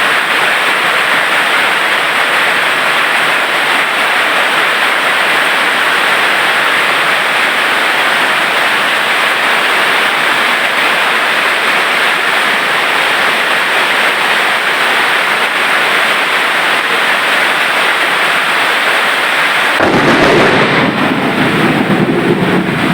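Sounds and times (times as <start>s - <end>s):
heavy rain pouring: 0.0s - 22.9s
deep rumble: 19.8s - 22.9s.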